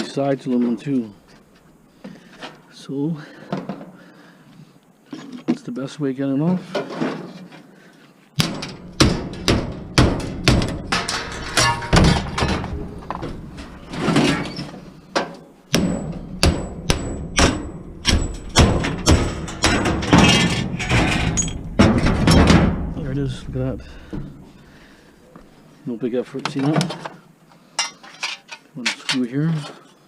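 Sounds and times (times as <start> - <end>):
hard knocks on metal: 8.4 - 13.8, 15.2 - 24.8.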